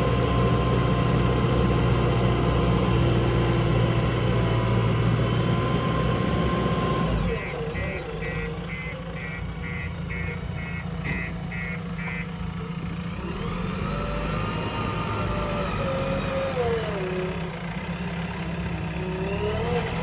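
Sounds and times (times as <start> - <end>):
heavy diesel engine running: 0.0 - 20.0
reversing alarm beeping: 7.4 - 12.2.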